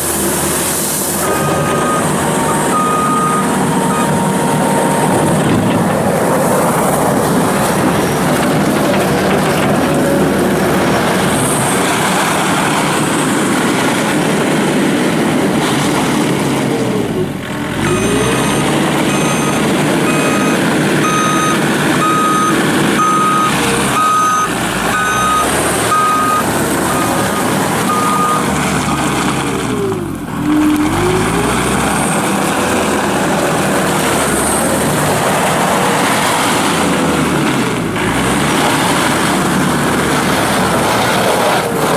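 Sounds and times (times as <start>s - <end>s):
diesel engine running hard: 0.0s - 41.9s
backup alarm beeping: 1.3s - 5.4s, 17.9s - 28.5s.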